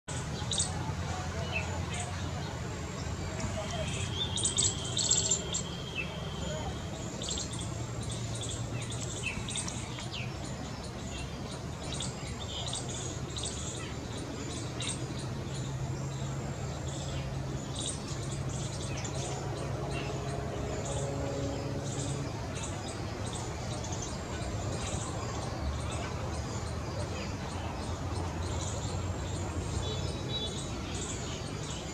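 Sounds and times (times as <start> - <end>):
birds chirping: 0.1 - 31.9.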